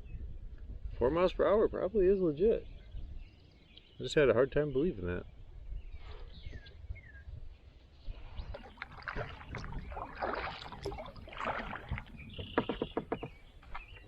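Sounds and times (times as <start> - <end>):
paddle splashing in water: 8.3 - 14.0.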